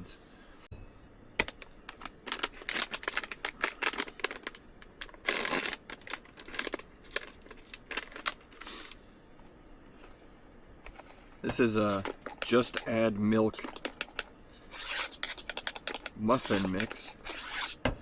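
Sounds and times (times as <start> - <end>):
packet tearing: 1.4 - 8.6, 16.3 - 17.6
packet crinkling and rustling: 1.4 - 9.0.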